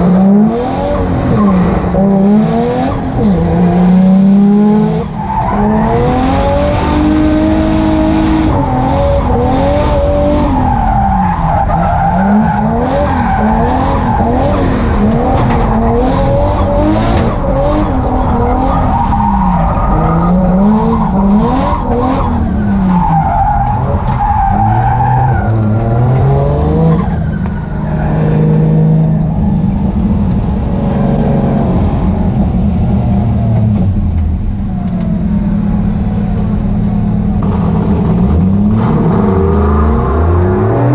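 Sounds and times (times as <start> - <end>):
car engine revving: 0.0 - 40.9
tyres skidding: 0.0 - 40.9.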